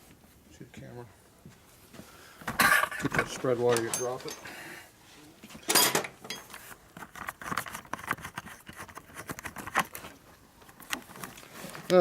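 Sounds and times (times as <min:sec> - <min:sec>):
metal tools clinking: 0:03.1 - 0:04.5, 0:05.6 - 0:06.6.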